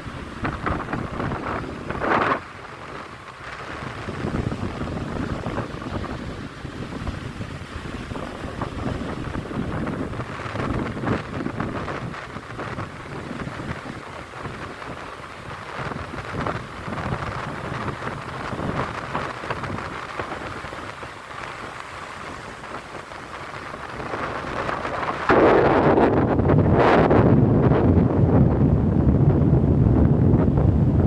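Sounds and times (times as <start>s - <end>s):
sea waves washing on shore: 0.0s - 31.0s
wind buffeting microphone: 0.0s - 31.0s.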